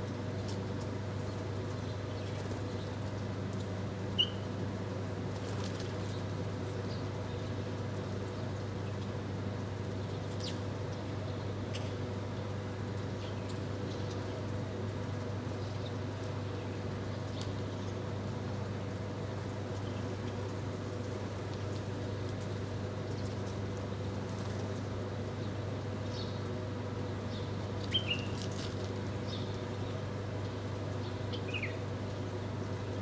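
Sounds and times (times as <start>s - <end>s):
small birds chirping: 27.3s - 28.4s.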